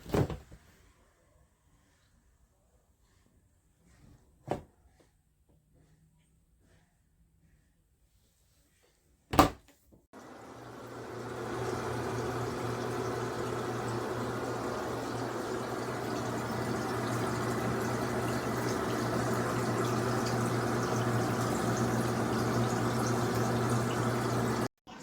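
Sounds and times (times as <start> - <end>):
water churning in tub: 10.2 - 24.7
washing machine motor hum: 10.2 - 25.0.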